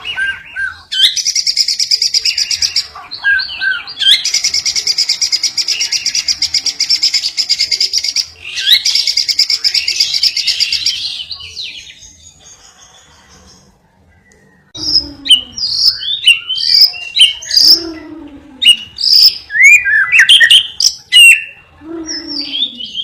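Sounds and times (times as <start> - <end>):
bird singing fast trills: 0.0 - 13.8, 14.6 - 23.0.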